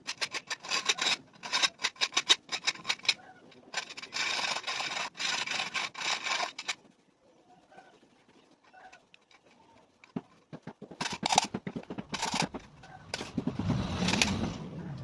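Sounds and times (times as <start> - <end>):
motorcycle engine cranking and running: 11.0 - 15.0.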